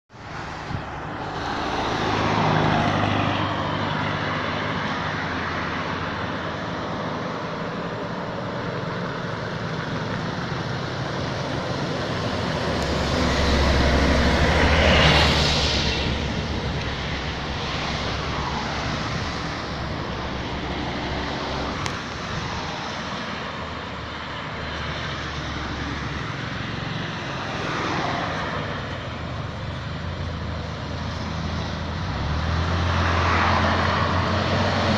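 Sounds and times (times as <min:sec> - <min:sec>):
trucks and buses driving past: 0:00.1 - 0:34.9.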